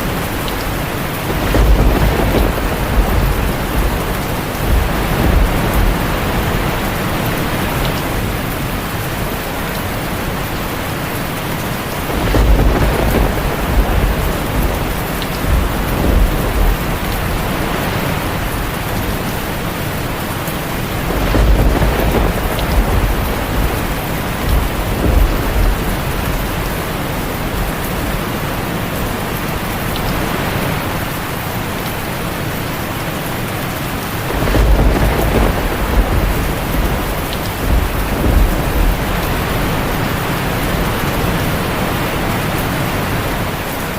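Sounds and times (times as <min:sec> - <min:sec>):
thunder rumbling: 0:00.0 - 0:31.2, 0:33.9 - 0:43.7
heavy rain on a tin roof: 0:00.0 - 0:43.9.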